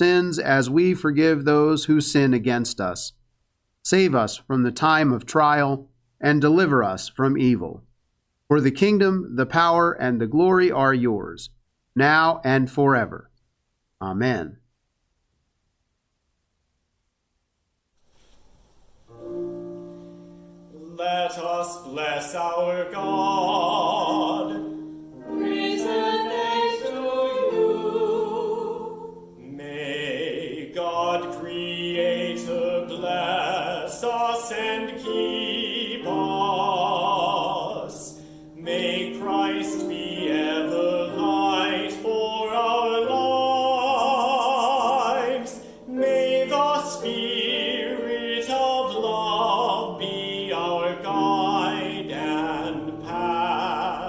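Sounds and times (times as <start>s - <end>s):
held accompaniment chords: 19.1s - 54.0s
person singing with vibrato: 20.1s - 54.0s.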